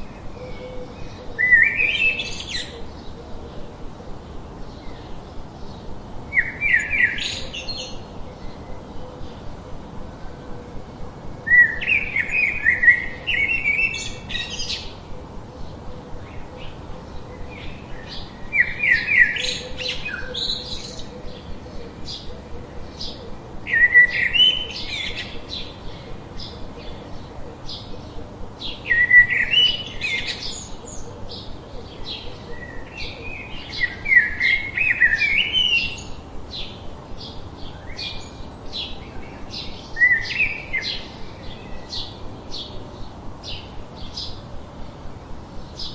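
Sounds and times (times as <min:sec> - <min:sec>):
songbird warbling: 0:04.7 - 0:10.0, 0:11.4 - 0:42.8.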